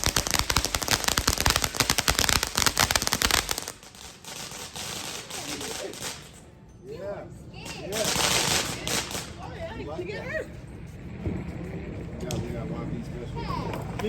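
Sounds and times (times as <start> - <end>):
firecrackers popping: 0.0 - 6.6, 7.6 - 9.6.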